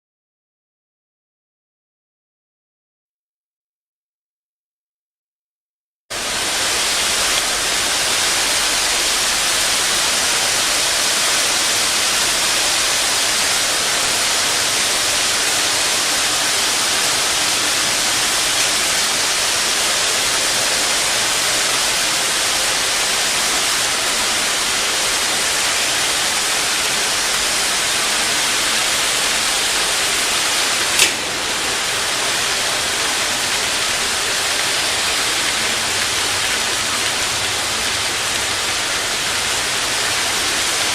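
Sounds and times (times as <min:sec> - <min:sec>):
machine running with rushing noise: 0:06.1 - 0:40.9
sharp click: 0:30.9 - 0:31.3.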